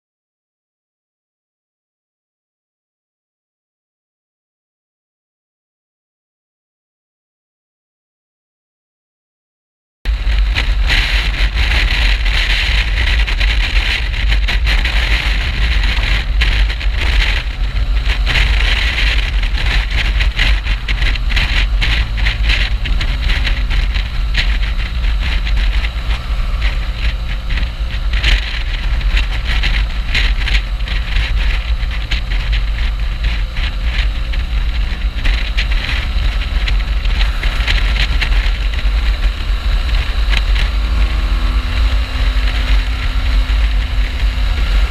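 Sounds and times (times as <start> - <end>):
motorcycle engine running: 10.1 - 44.9
wind buffeting microphone: 10.1 - 44.9.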